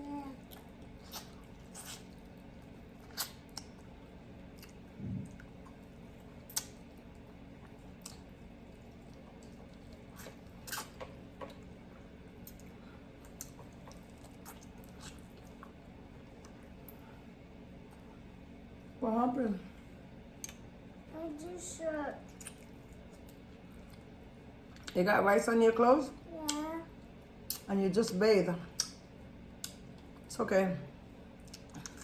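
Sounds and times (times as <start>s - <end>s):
people chewing food: 0.0s - 18.4s, 22.2s - 25.0s, 31.4s - 32.0s
steady low hum: 0.0s - 32.0s
eating clicks and smacks: 3.0s - 5.8s, 6.4s - 11.7s, 12.4s - 17.0s, 20.4s - 20.7s, 22.3s - 24.1s, 27.5s - 27.7s, 28.8s - 29.0s, 29.6s - 30.2s, 31.4s - 32.0s.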